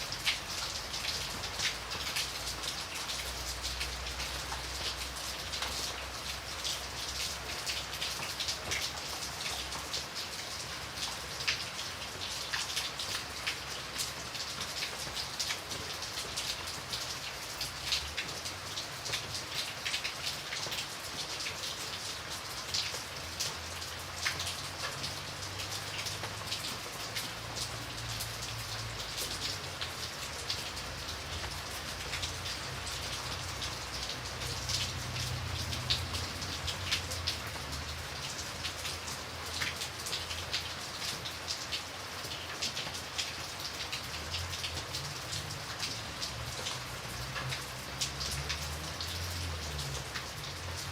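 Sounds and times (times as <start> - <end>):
rain falling: 0.0 - 50.9.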